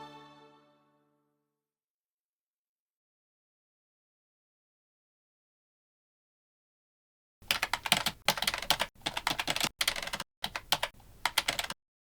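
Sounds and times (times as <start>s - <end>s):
keyboard typing: 7.4s - 11.8s.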